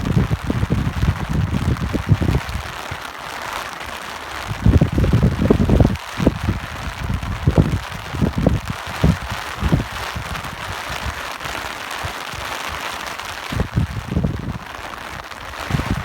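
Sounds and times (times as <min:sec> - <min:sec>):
rain hissing: 0:00.0 - 0:16.0
wind rumbling on microphone: 0:00.0 - 0:16.0.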